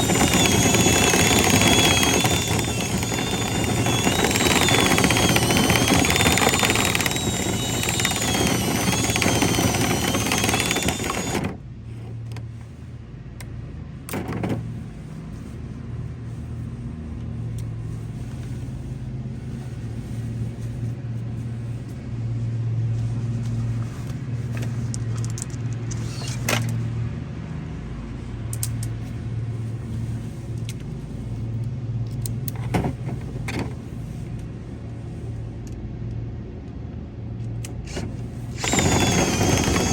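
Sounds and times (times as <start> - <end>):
motor with high whine: 0.0 - 11.6, 37.7 - 39.9.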